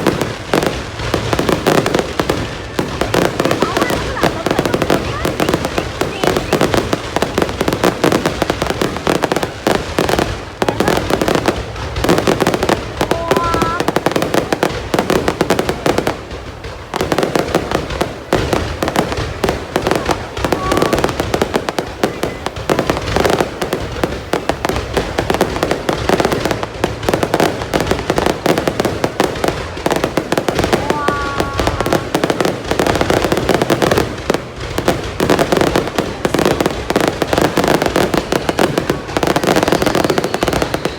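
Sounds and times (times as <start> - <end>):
fireworks cracks and bangs: 0.0 - 40.9.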